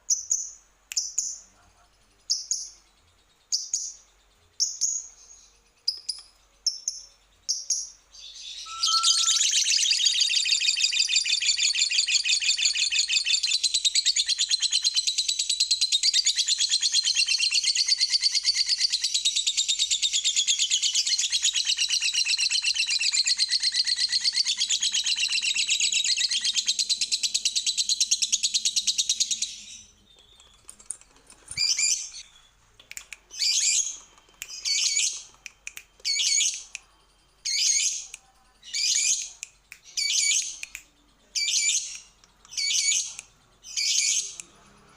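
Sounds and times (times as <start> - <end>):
bird chirping bursts: 8.3 - 11.5
lovebird chattering trill: 8.6 - 15.1.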